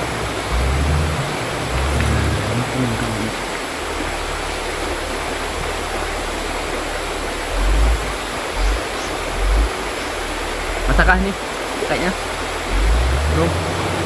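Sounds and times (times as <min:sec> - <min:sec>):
low bumps: 0:00.0 - 0:14.0
river water rushing: 0:00.0 - 0:14.0.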